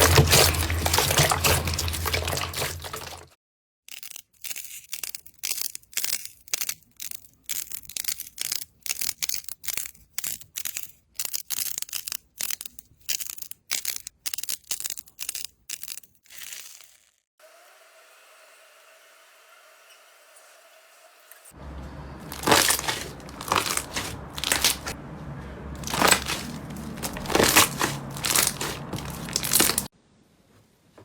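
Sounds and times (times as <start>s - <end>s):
slime squeezed crackling: 22.2s - 25.0s, 25.8s - 29.9s.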